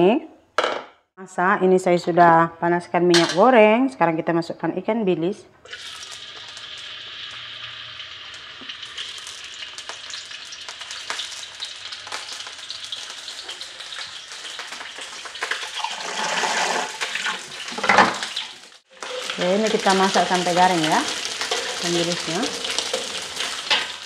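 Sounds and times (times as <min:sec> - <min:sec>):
fish sizzling in hot oil: 0:05.7 - 0:24.0.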